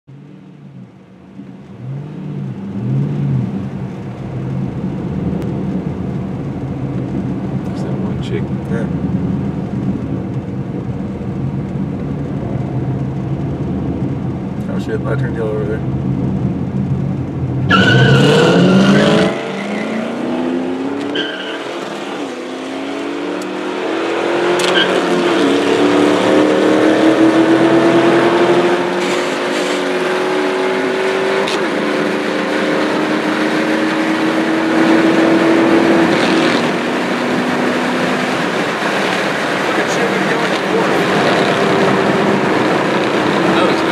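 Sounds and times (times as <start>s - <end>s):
car engine accelerating hard: 0.4s - 43.9s
cars launching with tire noise: 17.6s - 28.0s.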